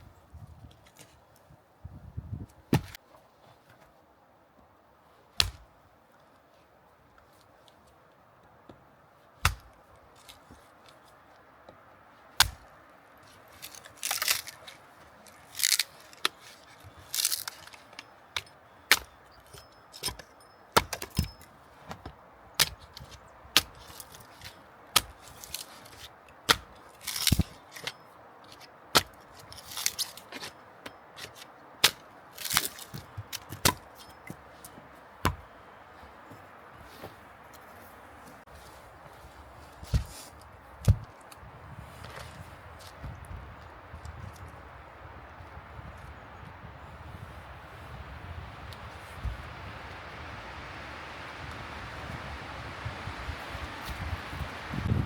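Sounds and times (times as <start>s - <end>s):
sharp cracks and knocks: 5.4s - 5.7s, 9.4s - 10.4s, 12.4s - 12.7s, 13.5s - 34.4s
short scraping rustle: 36.8s - 40.5s.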